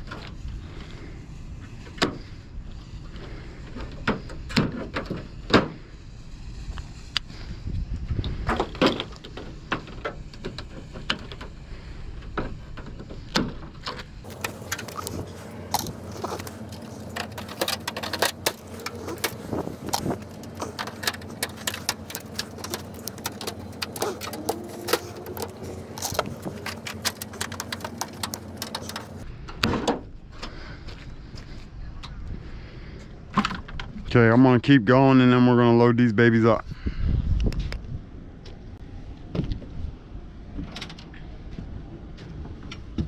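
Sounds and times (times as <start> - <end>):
metal shelving clanking: 14.2 - 29.2.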